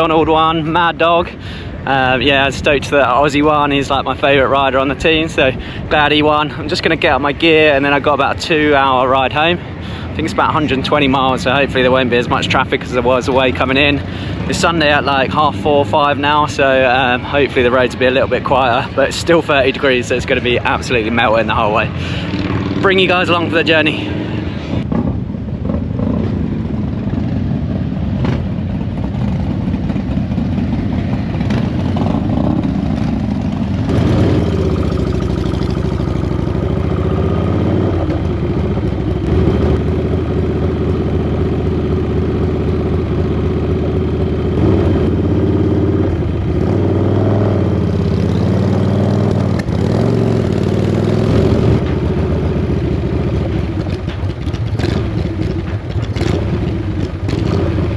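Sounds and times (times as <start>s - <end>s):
motorcycle engine revving: 19.6s - 57.9s.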